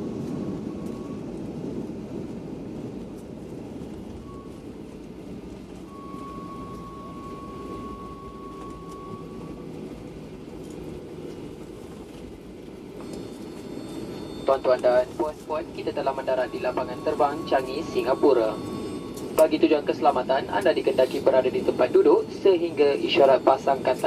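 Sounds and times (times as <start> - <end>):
aircraft cabin low rumble: 0.0 - 24.0
thin high whine: 13.0 - 24.0.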